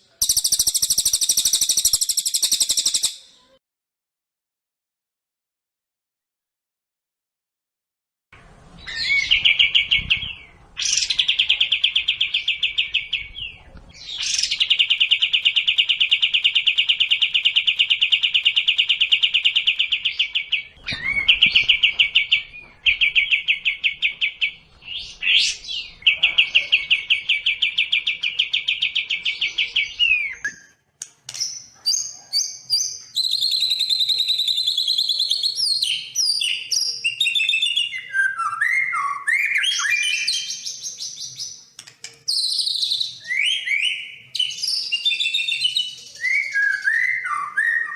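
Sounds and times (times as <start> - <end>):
bird whistles and chips: 0.2 - 3.2, 42.3 - 47.9
songbird trilling: 0.2 - 3.2.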